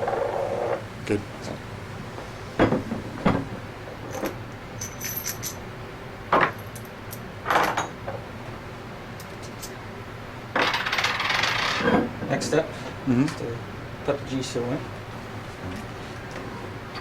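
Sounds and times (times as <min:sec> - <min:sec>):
metal parts clinking on workbench: 0:04.1 - 0:05.6.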